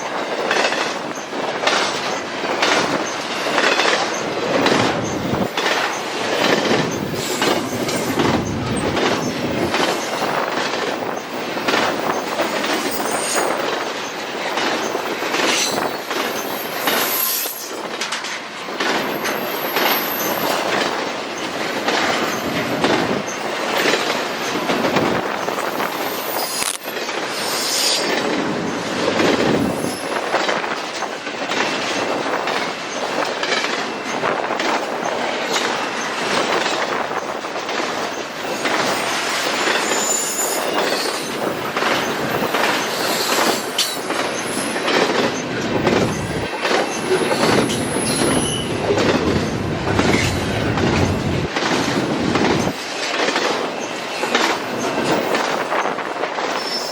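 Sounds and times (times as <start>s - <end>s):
train wheels clacking over rail joints: 0.0s - 56.9s
high-pitched wheel squeals: 16.4s - 17.7s, 27.4s - 28.1s, 39.8s - 41.4s, 46.9s - 48.8s.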